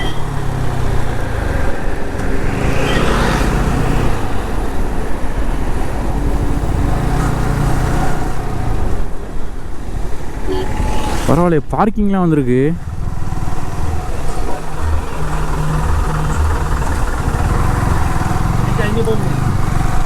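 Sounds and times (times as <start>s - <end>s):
road and wind rumble: 0.0s - 20.0s
motorcycle engine running: 12.8s - 20.0s.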